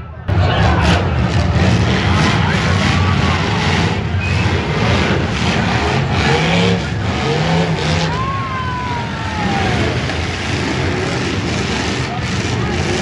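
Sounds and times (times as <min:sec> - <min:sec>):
car engines revving together: 0:00.4 - 0:08.3, 0:09.5 - 0:13.0.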